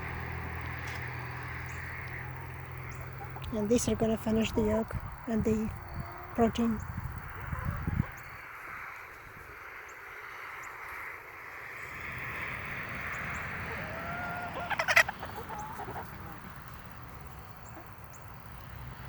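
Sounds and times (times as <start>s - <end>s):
hens clucking: 0.0s - 8.4s, 12.0s - 19.0s
hen squawking: 13.6s - 16.6s.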